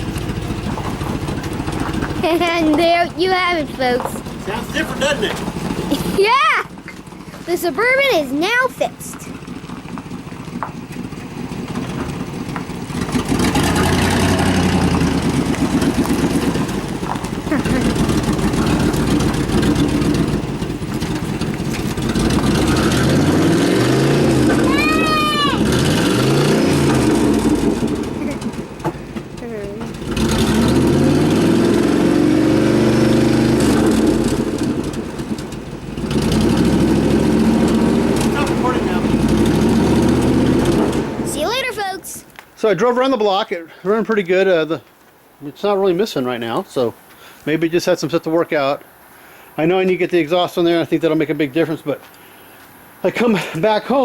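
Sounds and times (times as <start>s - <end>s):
engine running: 0.0s - 42.7s.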